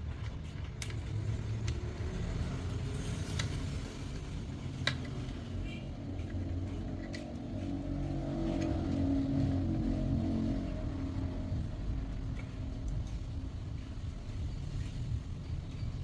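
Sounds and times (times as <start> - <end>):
low steady rumble: 0.0 - 16.0
sharp clicks and taps of small parts: 0.1 - 2.1, 3.0 - 7.6.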